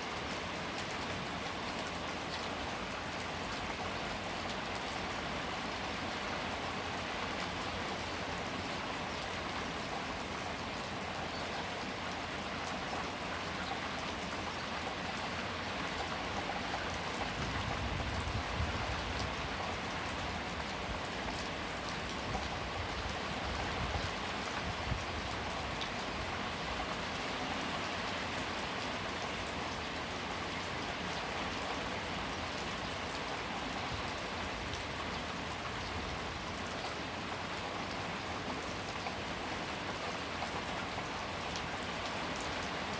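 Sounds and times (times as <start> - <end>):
heavy rain: 0.0 - 42.9.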